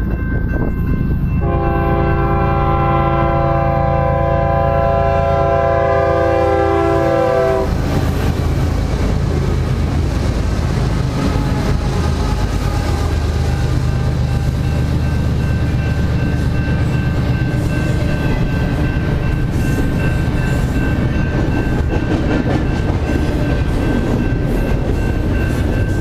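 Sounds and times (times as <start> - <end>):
passing train rumble: 0.0 - 26.0
train horn chord: 1.4 - 7.8.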